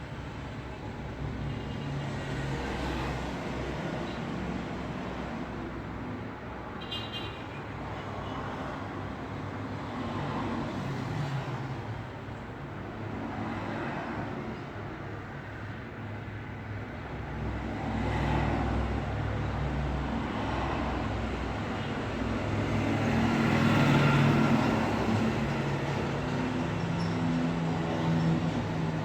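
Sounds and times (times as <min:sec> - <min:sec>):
road traffic noise: 0:00.0 - 0:29.0
vehicles passing: 0:07.6 - 0:29.0.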